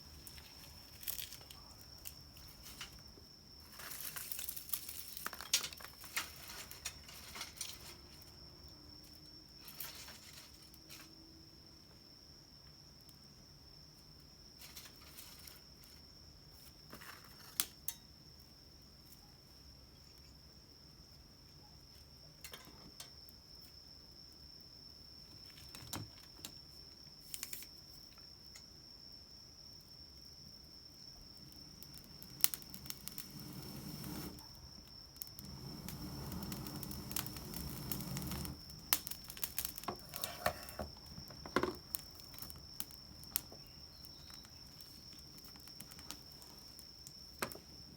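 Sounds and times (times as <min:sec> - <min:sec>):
twig fire crackling: 0:00.0 - 0:08.5, 0:27.1 - 0:28.0, 0:30.9 - 0:47.9.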